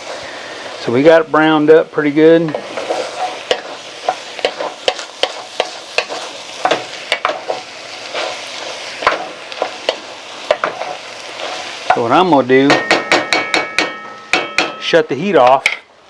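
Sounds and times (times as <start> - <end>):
beef sizzling in a pot: 0.0 - 16.0
utensil scraping a pot: 2.5 - 12.3.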